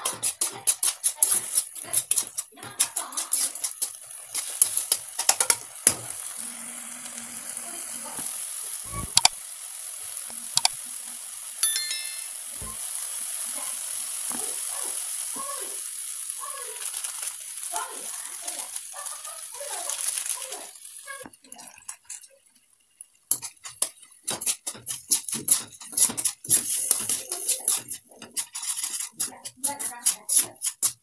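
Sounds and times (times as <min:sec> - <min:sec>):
spoon scraping against pan: 0:00.0 - 0:05.6, 0:23.3 - 0:31.0
onion and tomato sizzling in pan: 0:00.0 - 0:31.0.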